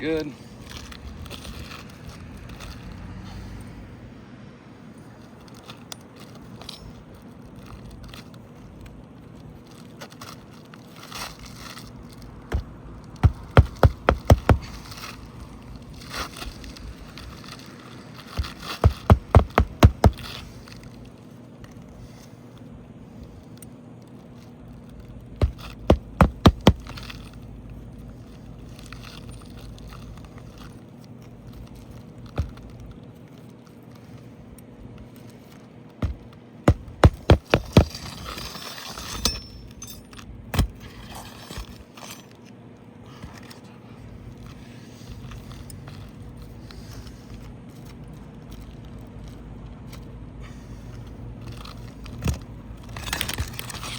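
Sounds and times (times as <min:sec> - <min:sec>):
hammer driving nails: 0:12.5 - 0:14.8, 0:18.4 - 0:20.3, 0:25.4 - 0:27.0, 0:36.0 - 0:38.2.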